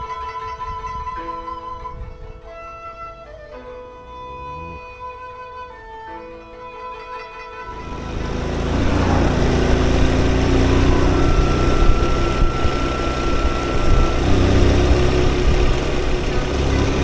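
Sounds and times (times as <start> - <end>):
wind rumble on microphone: 0.5 - 2.6, 7.8 - 17.0
motorcycle engine running: 7.6 - 17.0.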